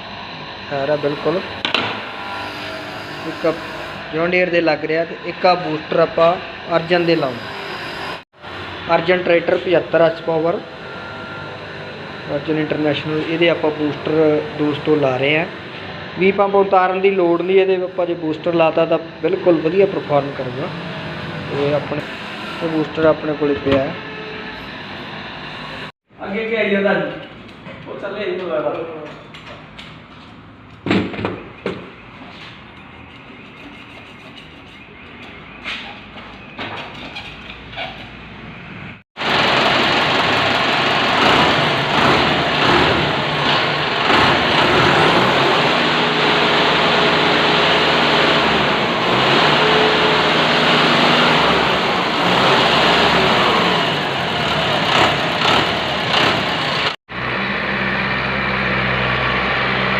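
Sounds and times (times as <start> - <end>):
tractor diesel engine running: 39.2 - 59.9.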